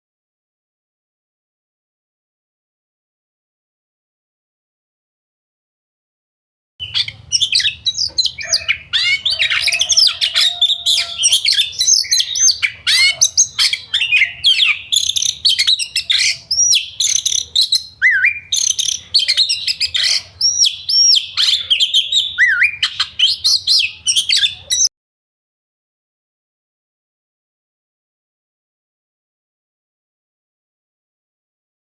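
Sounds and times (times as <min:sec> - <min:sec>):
bulbuls chattering whistled song: 0:06.8 - 0:24.9.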